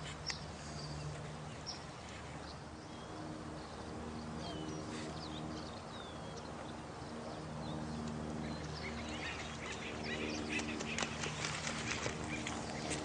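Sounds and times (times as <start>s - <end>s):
bird chirps and clicks: 0.2s - 0.5s
running water: 8.8s - 13.0s.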